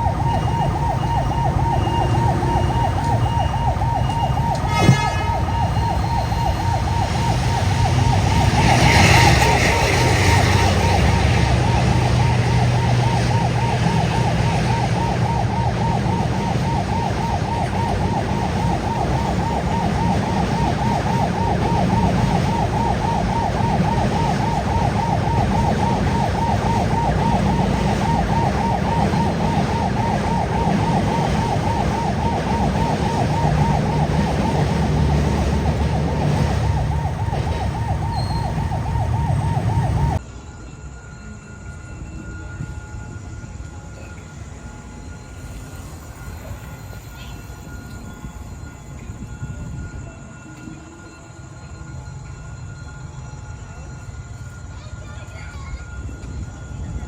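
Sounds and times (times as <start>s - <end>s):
level crossing alarm warbling: 0.0s - 40.2s.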